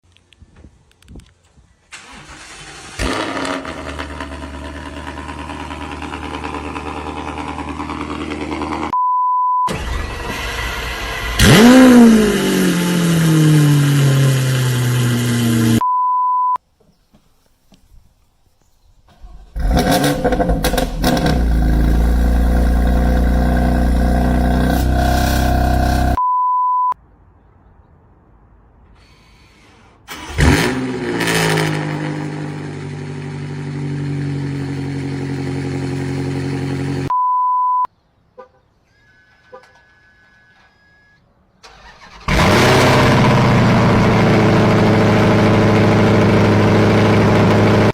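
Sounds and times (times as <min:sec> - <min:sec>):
car engines cold-starting: 0:01.9 - 0:08.9, 0:09.7 - 0:15.8, 0:19.1 - 0:26.2, 0:30.0 - 0:32.6, 0:41.6 - 0:47.9
short steady beeps: 0:09.0 - 0:09.7, 0:26.2 - 0:27.0, 0:37.1 - 0:37.9.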